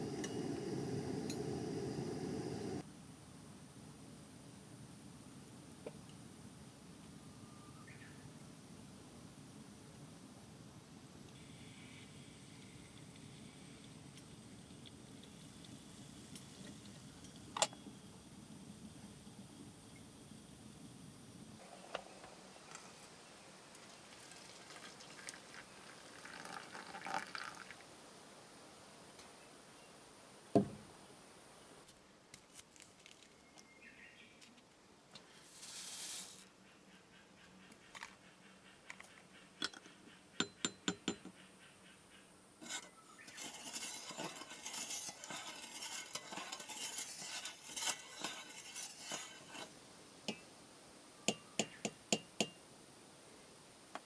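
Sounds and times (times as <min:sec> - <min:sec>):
food sizzling: 0:00.0 - 0:02.8, 0:35.5 - 0:36.4, 0:42.6 - 0:49.7
utensils clinking against cookware: 0:42.7 - 0:49.6.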